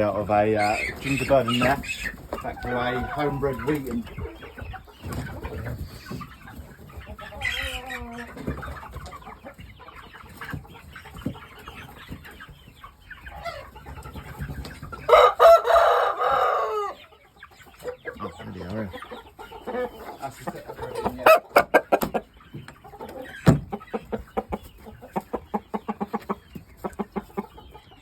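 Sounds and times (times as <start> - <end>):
chickens clucking: 0.0 - 28.0
rooster crowing: 15.1 - 17.0.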